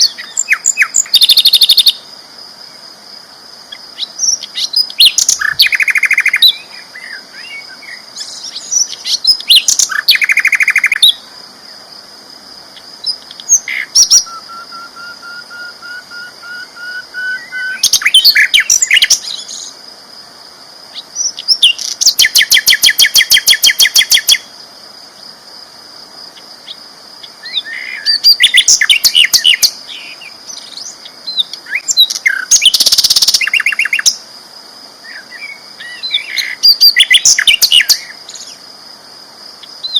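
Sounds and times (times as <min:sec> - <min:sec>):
flycatcher singing: 0:00.0 - 0:02.0, 0:03.7 - 0:11.3, 0:12.8 - 0:19.8, 0:20.9 - 0:24.5, 0:26.6 - 0:34.2, 0:35.1 - 0:38.6.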